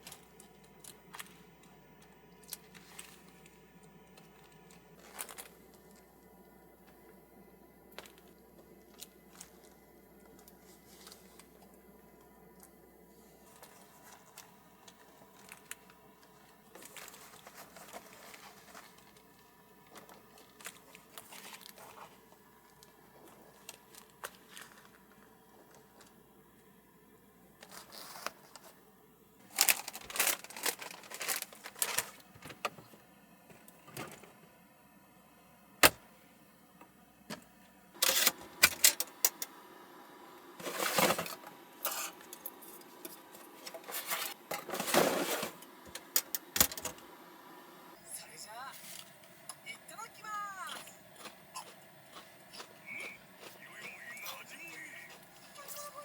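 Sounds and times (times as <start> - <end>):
crinkly rustling: 0.0 - 6.1, 7.9 - 11.7, 13.2 - 26.2, 27.6 - 28.8, 29.4 - 32.6, 40.6 - 47.4.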